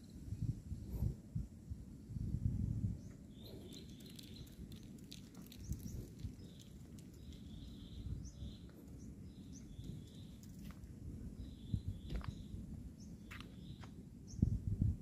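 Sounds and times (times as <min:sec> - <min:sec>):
birds chirping: 0:03.0 - 0:14.6.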